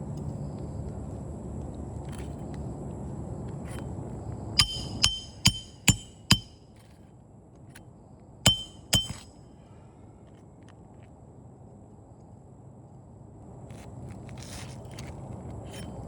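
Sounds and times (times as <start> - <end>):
hammer striking metal: 4.6 - 6.6, 8.5 - 9.4.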